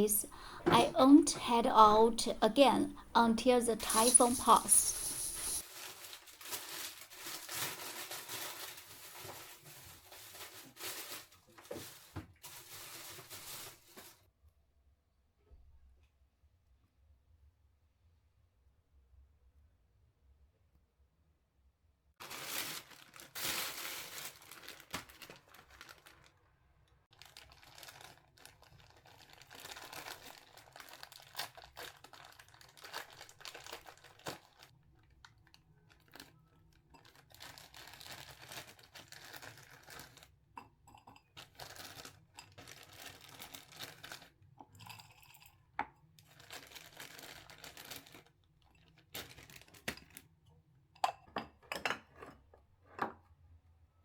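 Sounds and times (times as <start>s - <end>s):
plastic bags rustling: 0.0s - 14.2s, 22.2s - 26.3s, 27.2s - 34.7s, 37.0s - 40.3s, 41.4s - 44.3s, 46.3s - 48.4s, 49.1s - 50.2s.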